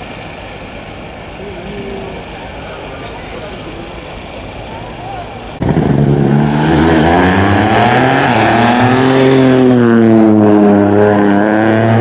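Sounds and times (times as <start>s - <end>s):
rally car engine at high revs: 5.6s - 12.0s.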